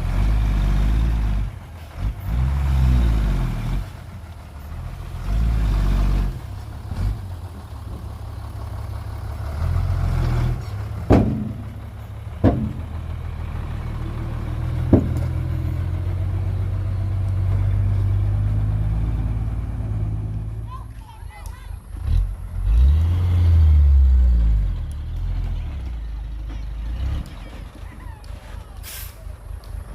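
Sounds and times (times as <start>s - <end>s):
diesel earthmoving machinery running: 0.0s - 29.9s.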